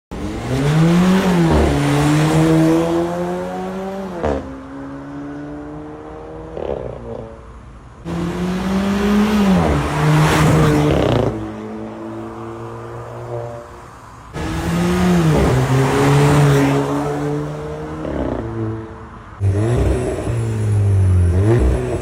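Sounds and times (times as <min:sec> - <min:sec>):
car engine revving: 0:08.0 - 0:13.6, 0:14.3 - 0:22.0.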